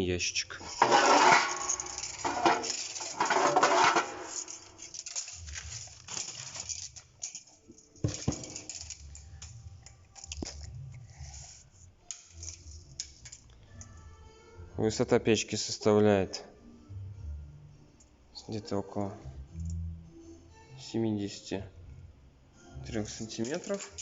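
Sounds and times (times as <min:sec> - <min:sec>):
scraping and rustling at stove: 0:00.6 - 0:09.3.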